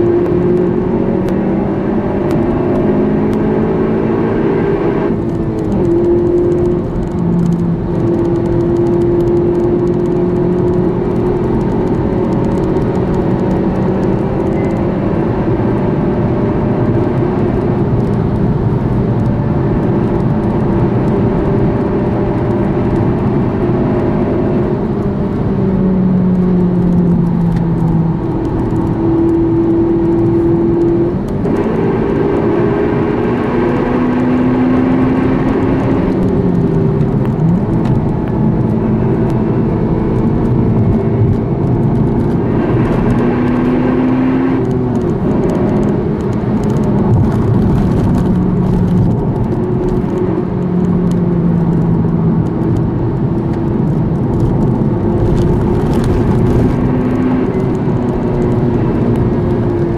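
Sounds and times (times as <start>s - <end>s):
car engine accelerating through gears: 0.0s - 59.9s
tyre and road noise: 0.0s - 59.9s.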